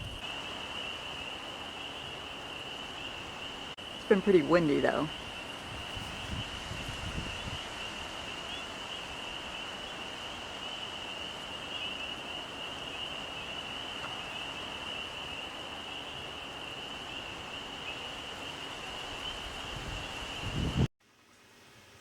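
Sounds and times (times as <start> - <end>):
wind rumble on microphone: 0.0 - 0.2, 5.1 - 9.7, 18.9 - 20.9
frogs chorus: 0.0 - 20.9.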